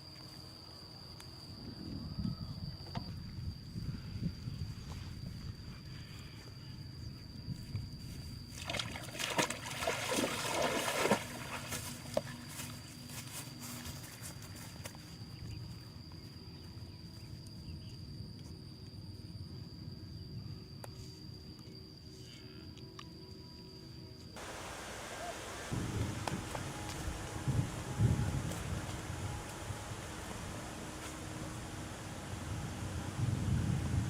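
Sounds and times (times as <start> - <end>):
outdoor ambience: 0.0 - 34.0
water splashing and sloshing: 8.5 - 12.4, 24.4 - 32.1
steady high-pitched whine: 11.2 - 34.0.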